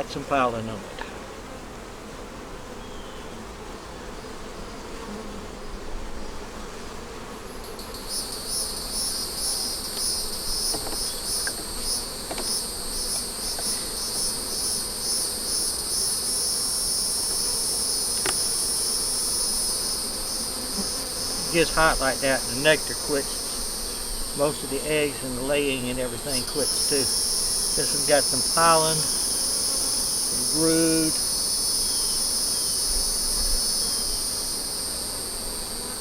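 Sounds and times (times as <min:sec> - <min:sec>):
honey bees humming: 0:00.0 - 0:36.0
shrill pulsing insect song: 0:07.6 - 0:36.0.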